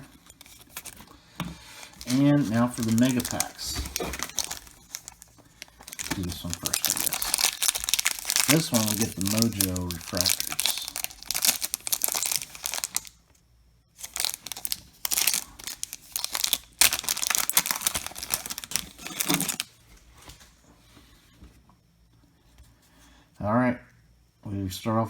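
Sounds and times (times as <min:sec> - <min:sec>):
plastic wrapper tearing and crinkling: 0:00.0 - 0:13.2, 0:14.0 - 0:19.8.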